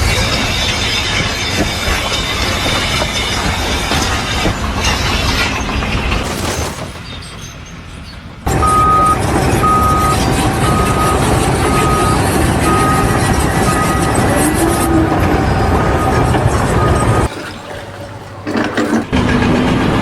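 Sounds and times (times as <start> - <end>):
heavy machine engine running: 0.0 - 20.0
reversing alarm beeping: 8.5 - 17.3.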